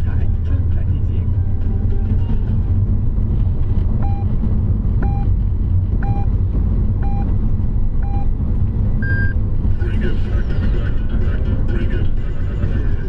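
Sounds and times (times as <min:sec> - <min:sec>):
car engine and tyres rumble: 0:00.0 - 0:13.0
radio time signal beeps: 0:05.0 - 0:05.3, 0:06.0 - 0:06.3, 0:08.0 - 0:08.3, 0:09.0 - 0:09.4.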